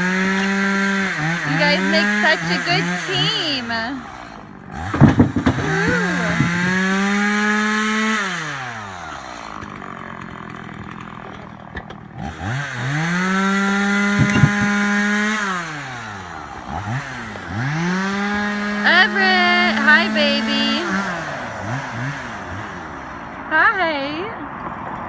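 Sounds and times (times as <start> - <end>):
chainsaw revving: 0.0 - 23.5.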